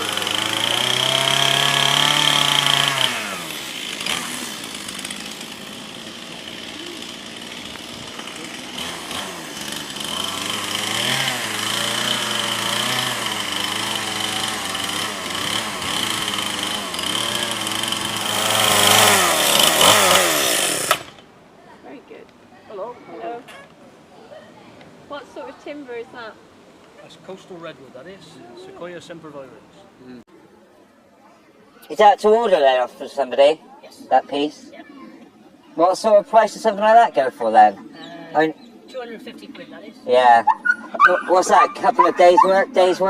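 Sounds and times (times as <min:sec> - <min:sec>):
chainsaw cutting into wood: 0:00.0 - 0:21.3.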